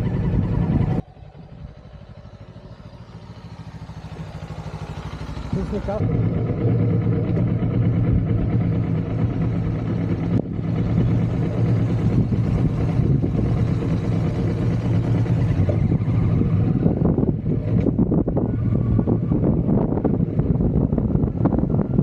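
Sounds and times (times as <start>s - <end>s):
motorcycle engine running: 0.0s - 22.0s
wind buffeting microphone: 6.5s - 22.0s.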